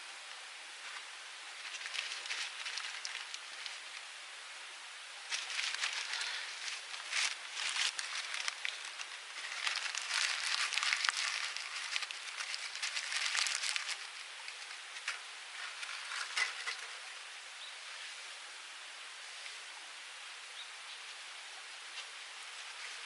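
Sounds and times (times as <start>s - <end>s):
small wood fire crackling: 0.0s - 17.2s.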